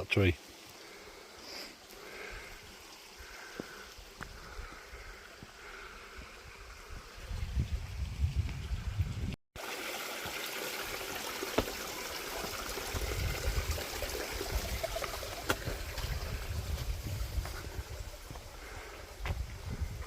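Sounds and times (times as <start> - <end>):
stream trickling over rocks: 0.0 - 20.0
wind buffeting microphone: 6.2 - 9.4, 12.8 - 20.0.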